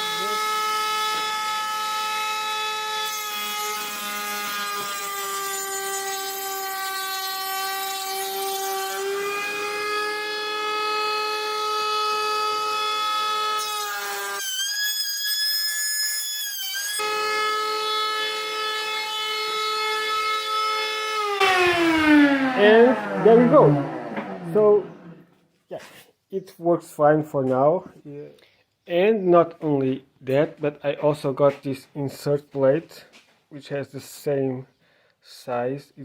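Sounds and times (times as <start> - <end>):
router whining: 16.6 - 25.3.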